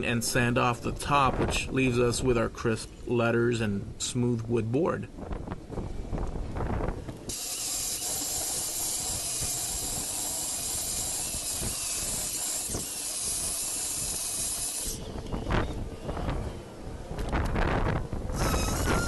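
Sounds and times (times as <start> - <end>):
spray paint can hissing: 7.3 - 14.8.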